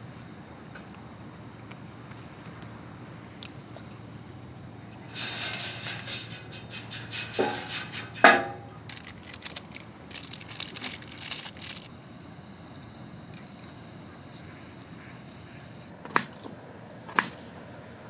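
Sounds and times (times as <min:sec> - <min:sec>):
hard objects clinking: 0:07.2 - 0:11.9, 0:13.3 - 0:15.4
rustling and crinkling handling: 0:07.2 - 0:12.0.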